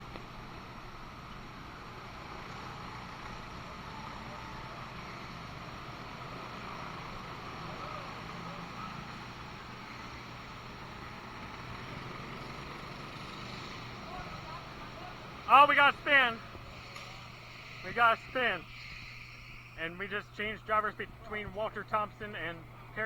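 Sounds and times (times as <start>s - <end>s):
race vehicles lapping a track: 0.1s - 23.0s
faint voices: 13.8s - 23.0s.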